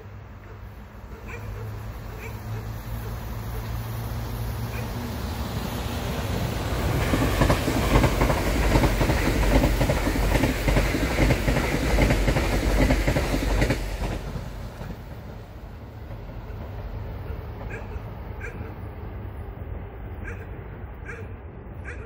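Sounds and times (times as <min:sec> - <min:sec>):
train passing at speed: 0:00.0 - 0:22.0
wheels clattering on rails: 0:06.0 - 0:18.9.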